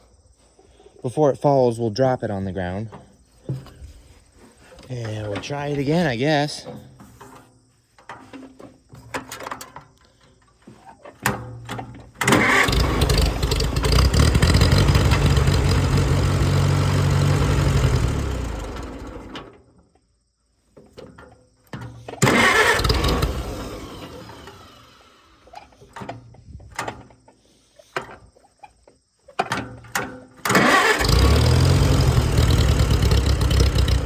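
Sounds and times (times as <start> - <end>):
engine cranking on starter: 11.3 - 19.7, 21.7 - 27.1, 29.5 - 34.0.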